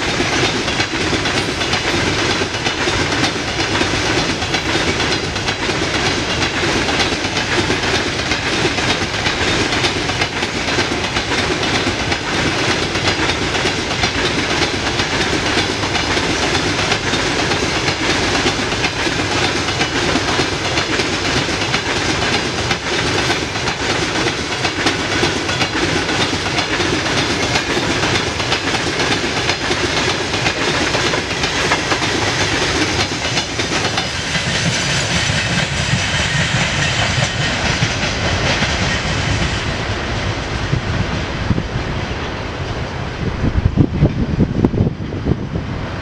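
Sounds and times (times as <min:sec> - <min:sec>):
wheels clattering over rail joints: 0:00.0 - 0:39.4
freight train rolling past: 0:00.0 - 0:46.0.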